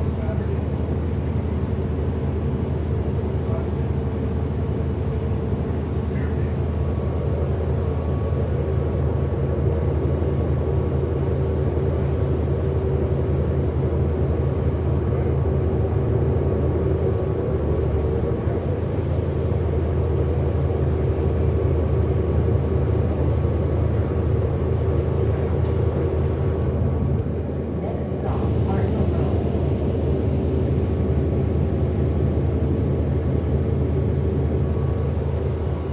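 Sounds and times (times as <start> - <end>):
bus interior rumble: 0.0 - 35.9
faint constant whine: 6.1 - 35.9.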